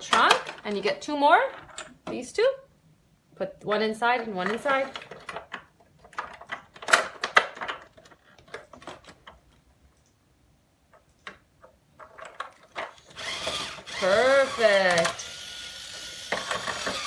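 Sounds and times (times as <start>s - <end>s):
plastic toy parts clicking: 11.0s - 17.0s.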